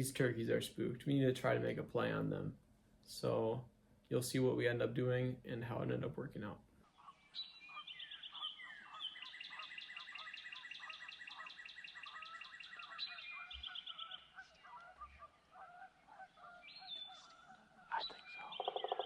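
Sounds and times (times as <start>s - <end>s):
lower bird calls: 6.8s - 19.0s
high rapid bird trill: 6.9s - 19.0s.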